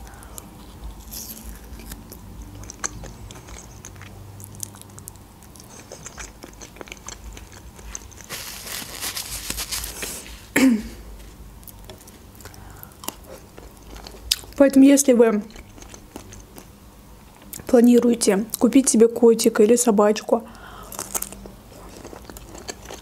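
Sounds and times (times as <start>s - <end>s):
person chewing fish: 0.0s - 10.1s, 11.6s - 14.6s, 15.6s - 16.7s, 20.8s - 23.0s.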